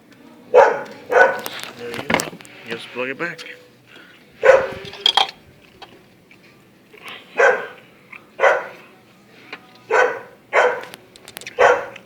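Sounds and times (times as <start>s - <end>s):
dog barking: 0.5s - 1.5s, 4.4s - 4.8s, 7.4s - 7.8s, 8.4s - 8.8s, 9.9s - 10.9s, 11.5s - 12.0s.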